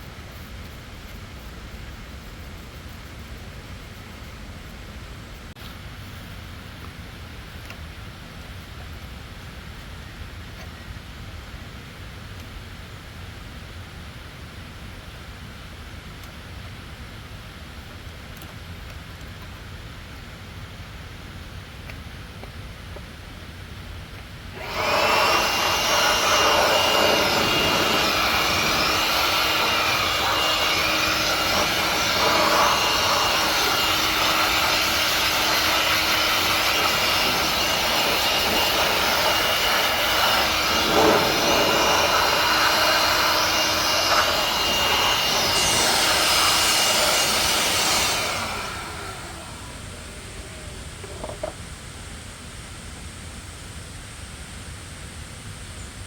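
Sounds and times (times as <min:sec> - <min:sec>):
power tool whining: 0:24.6 - 0:51.6.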